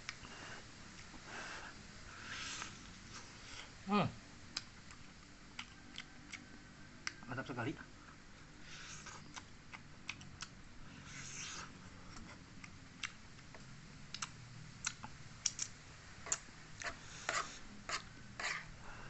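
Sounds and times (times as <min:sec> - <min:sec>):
wet chewing and smacking: 0:04.5 - 0:07.2, 0:08.9 - 0:18.7.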